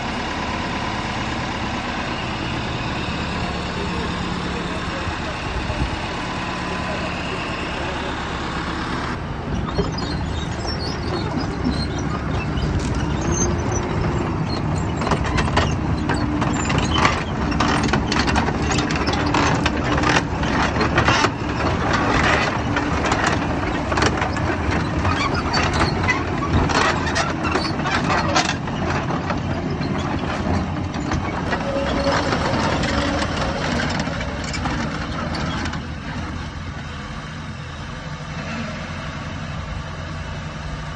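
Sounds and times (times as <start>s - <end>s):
tractor diesel engine running: 0.0s - 40.9s
metallic clattering: 9.6s - 36.4s.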